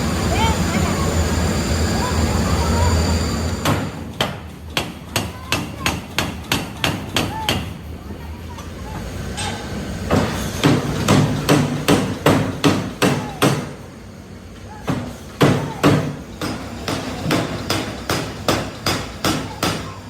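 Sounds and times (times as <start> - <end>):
hammer striking metal: 3.6 - 7.7, 9.4 - 13.9, 14.8 - 20.0.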